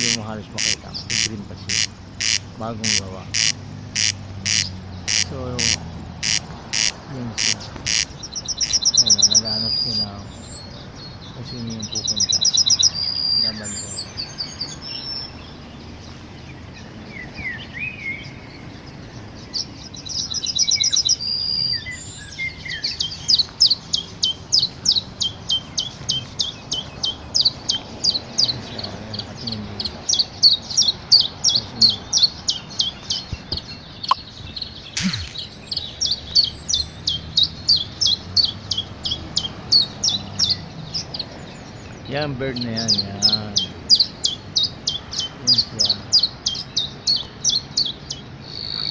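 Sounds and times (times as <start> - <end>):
buzzy bird trill: 0.0 - 10.7, 34.0 - 35.8
small birds chirping: 0.0 - 48.9.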